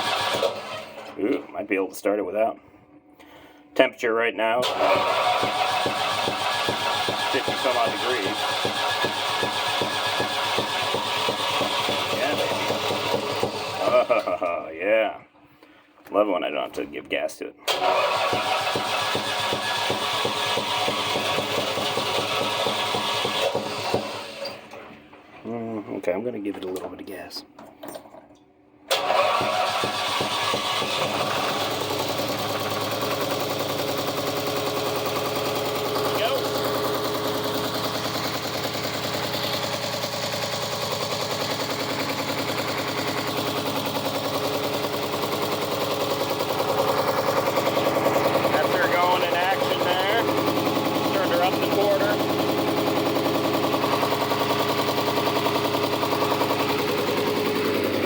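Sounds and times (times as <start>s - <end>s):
diesel engine idling with knock: 4.7s - 14.2s, 17.8s - 24.7s, 28.9s - 58.0s.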